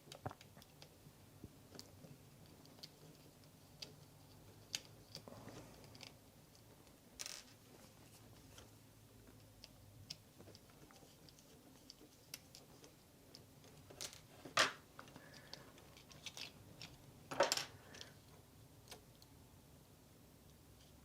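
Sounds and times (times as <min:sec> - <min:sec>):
plastic parts clicking: 0:09.6 - 0:18.2.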